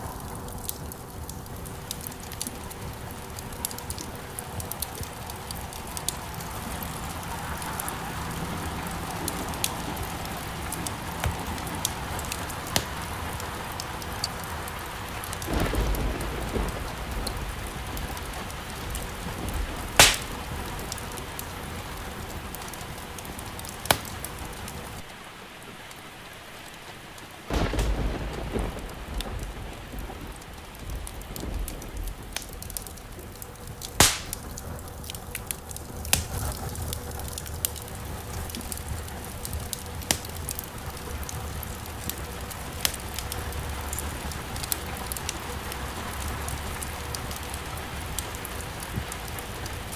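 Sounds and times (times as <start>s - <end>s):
thunder rumbles: 0.0s - 25.0s, 27.5s - 49.9s
steady rain: 0.0s - 49.9s
wood fire crackling: 0.0s - 49.9s
sharp fire pops: 9.3s - 14.4s, 15.2s - 21.5s, 22.5s - 24.6s, 27.5s - 42.2s.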